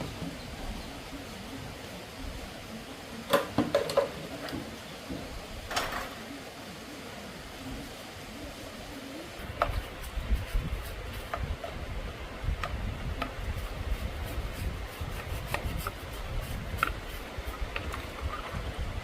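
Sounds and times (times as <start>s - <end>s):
rubbing and scraping on metal parts: 12.7s - 18.8s.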